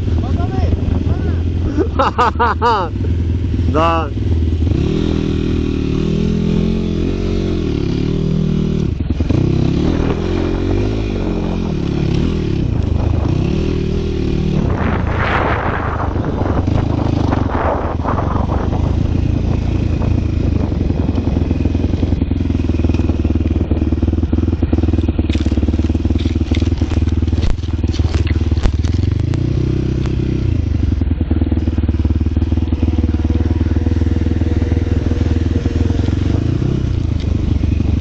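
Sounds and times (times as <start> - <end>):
small vehicle engine revving: 1.4 - 38.0
loud rushing scraping noise: 14.2 - 19.6.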